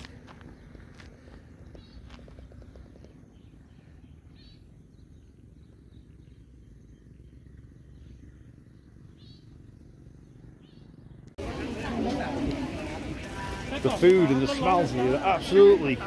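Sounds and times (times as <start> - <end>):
low steady rumble: 0.0 - 13.6
bird chirps: 0.3 - 11.4.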